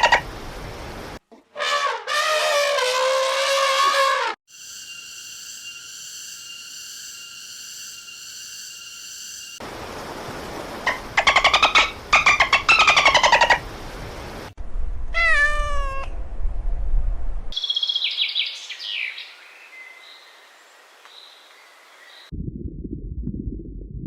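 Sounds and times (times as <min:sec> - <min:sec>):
pulsing falling animal call: 0:10.9 - 0:13.6.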